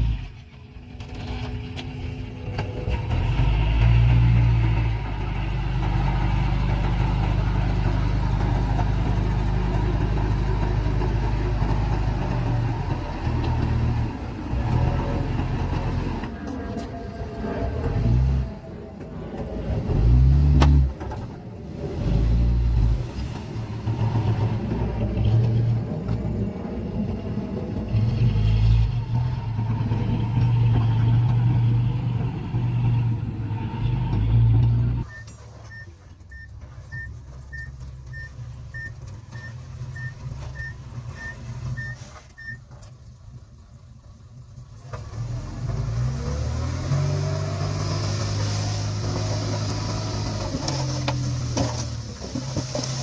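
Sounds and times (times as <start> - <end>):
heavy machine engines revving: 0.0 - 42.6, 44.8 - 53.0
reversing alarm beeping: 35.0 - 42.6.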